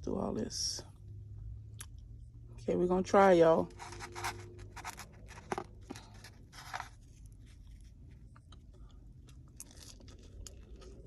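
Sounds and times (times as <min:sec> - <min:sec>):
chewing and crunching food: 0:03.7 - 0:11.0.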